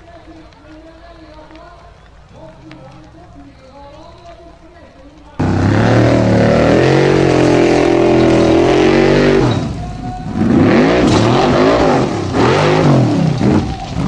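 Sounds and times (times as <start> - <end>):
rally car engine revving: 5.4 - 14.0.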